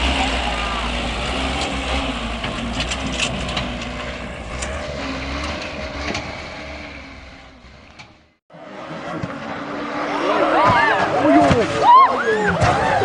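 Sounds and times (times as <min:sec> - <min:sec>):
heavy vehicle engine rumbling: 0:00.0 - 0:13.0
knocks and clatter: 0:01.2 - 0:08.4.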